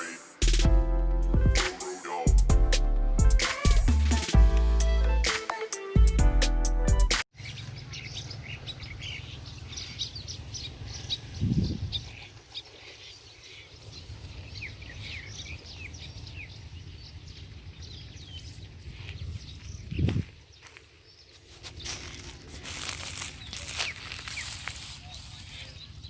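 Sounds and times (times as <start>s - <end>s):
small birds chirping: 7.3s - 26.0s
wind on microphone: 11.2s - 12.2s, 17.4s - 20.4s.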